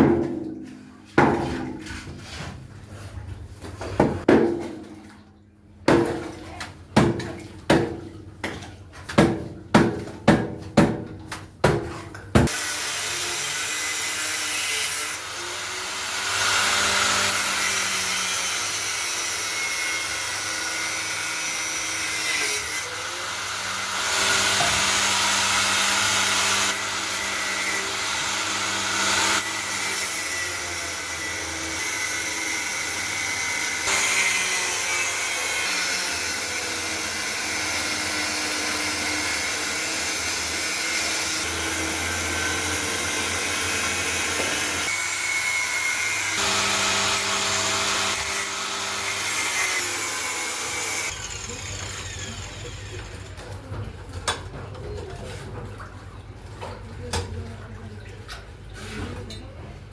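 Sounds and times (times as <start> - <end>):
electric power tool cutting: 12.5 - 20.8, 21.8 - 53.3.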